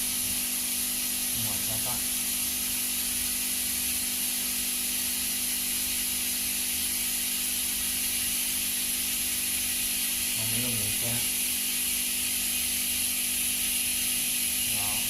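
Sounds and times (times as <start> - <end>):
steady hiss: 6.8 - 15.0.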